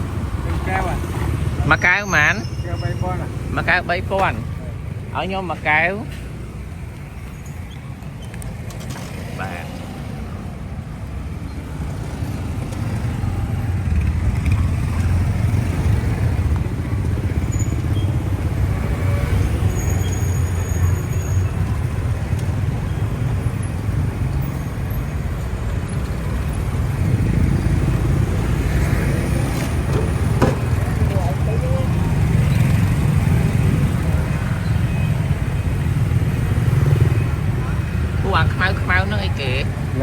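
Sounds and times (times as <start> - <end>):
motorbike rumble in traffic: 11.2 - 40.0.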